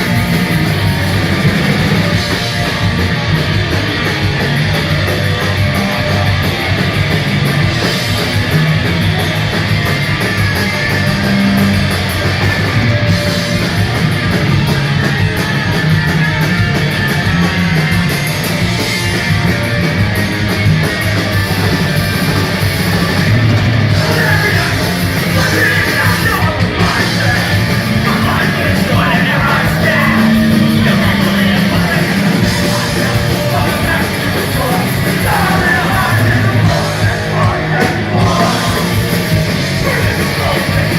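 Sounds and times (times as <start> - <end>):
punk rock band playing live: 0.0 - 40.9
shouted vocals: 23.9 - 40.9.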